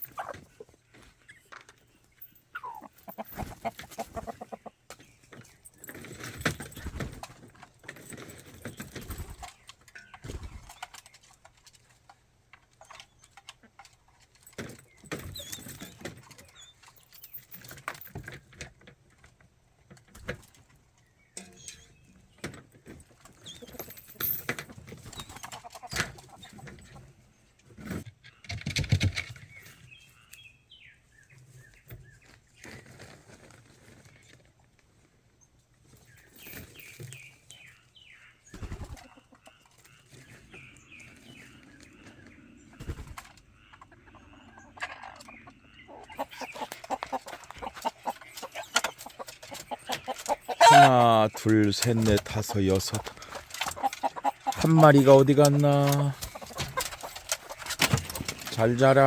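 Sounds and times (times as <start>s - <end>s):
chickens clucking: 0.0s - 6.1s, 8.8s - 17.0s, 24.7s - 29.0s, 35.9s - 59.0s
rustling: 46.2s - 59.0s
knocks and clatter: 51.3s - 59.0s.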